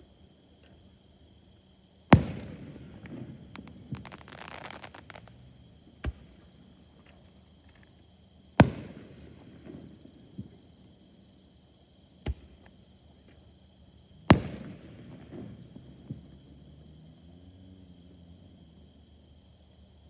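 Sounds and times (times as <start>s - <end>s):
fireworks bangs: 2.2s - 5.5s
fireworks crackling: 2.2s - 5.6s.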